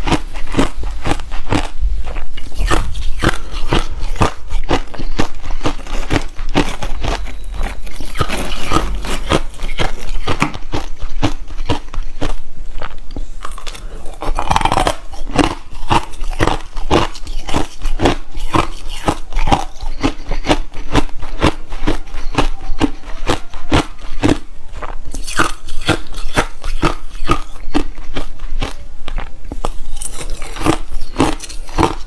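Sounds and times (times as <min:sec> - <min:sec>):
ice crunching between teeth: 0:00.0 - 0:32.0.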